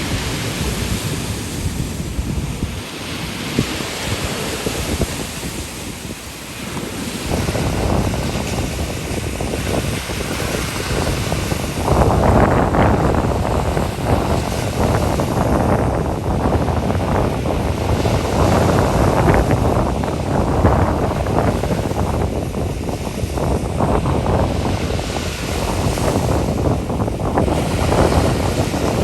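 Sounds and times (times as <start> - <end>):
ocean surf washing ashore: 0.0 - 29.0
wind buffeting microphone: 0.0 - 29.0.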